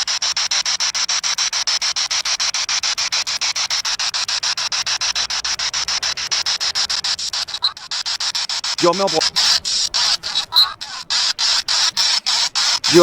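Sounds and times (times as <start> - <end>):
pulsing radio static hiss: 6.5 - 13.0.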